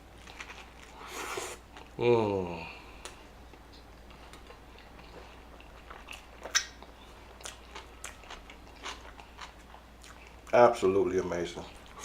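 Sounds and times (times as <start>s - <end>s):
wet chewing: 4.0s - 10.6s.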